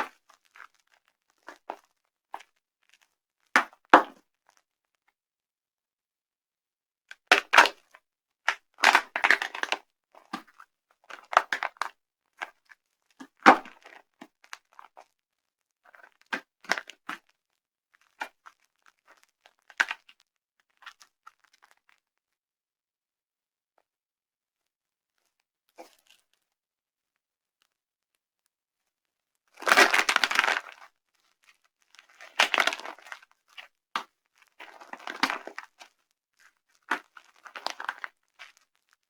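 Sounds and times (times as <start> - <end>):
dry soap crunching: 29.6 - 38.9.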